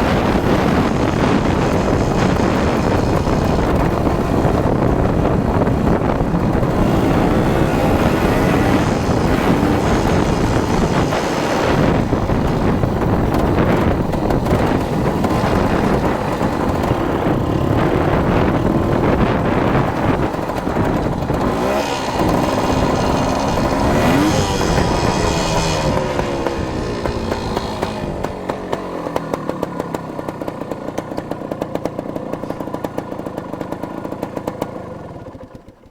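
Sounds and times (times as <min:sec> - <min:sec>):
dirt bike engine revving: 0:00.0 - 0:29.4.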